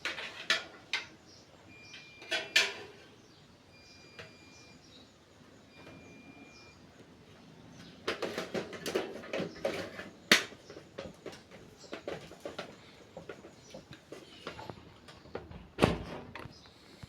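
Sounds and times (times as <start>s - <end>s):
hard objects clicking and knocking: 8.1s - 15.5s.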